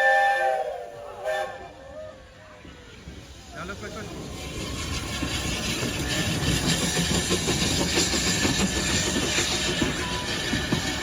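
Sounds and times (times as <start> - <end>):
steam train: 0.0 - 11.0
wheels clattering on rails: 2.6 - 11.0.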